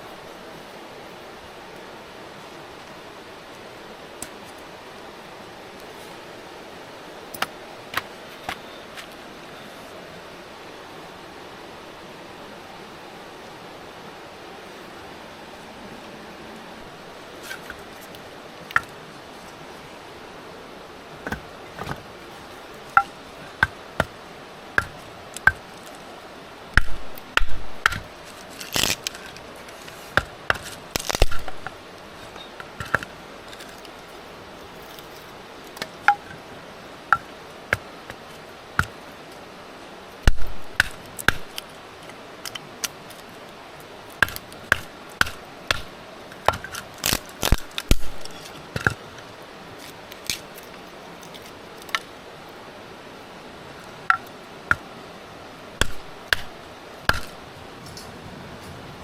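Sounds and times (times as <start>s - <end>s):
blade chopping knocks: 40.3s - 41.6s, 57.1s - 57.4s.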